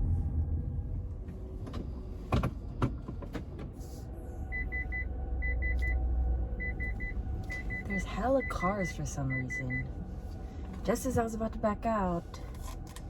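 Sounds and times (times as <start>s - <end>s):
car engine rumbling: 0.0s - 13.0s
car warning chime beeping: 4.5s - 6.0s, 6.6s - 10.0s.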